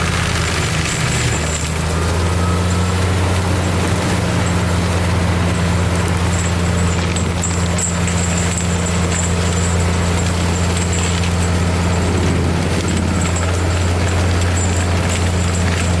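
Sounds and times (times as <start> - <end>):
tractor with mulcher droning: 0.0 - 16.0.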